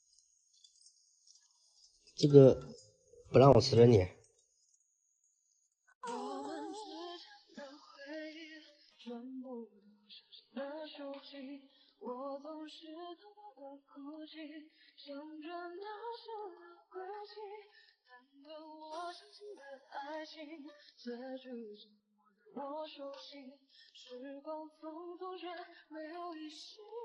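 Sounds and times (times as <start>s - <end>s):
woman singing slow melody: 6.0s - 21.9s, 22.5s - 27.0s.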